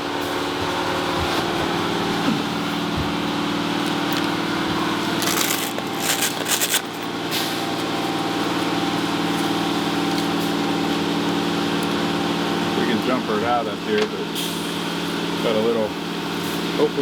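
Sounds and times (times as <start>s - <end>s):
machine hum: 2.9s - 7.3s
rustling and clicking handling noise: 3.7s - 7.2s.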